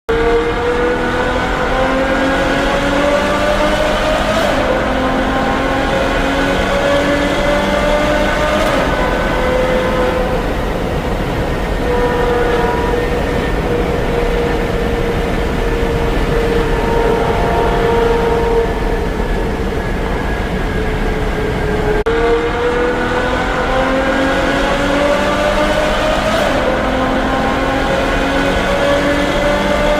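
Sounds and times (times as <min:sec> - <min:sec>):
car exhaust revving: 0:00.1 - 0:29.9.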